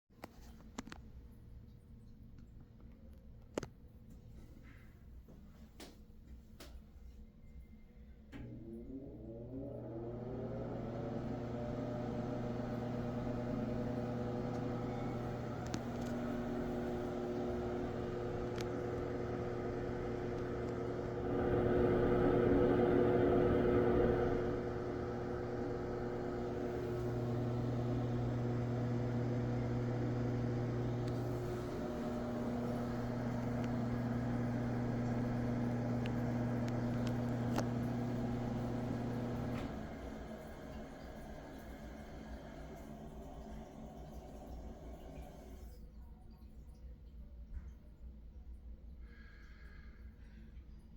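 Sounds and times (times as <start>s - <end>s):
exhaust fan motor hum: 8.4s - 45.6s.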